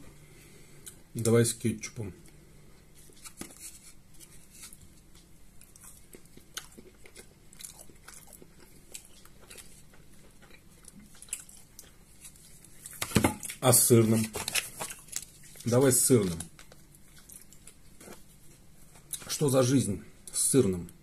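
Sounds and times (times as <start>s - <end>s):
chewing pastry with crunches: 2.8s - 19.5s.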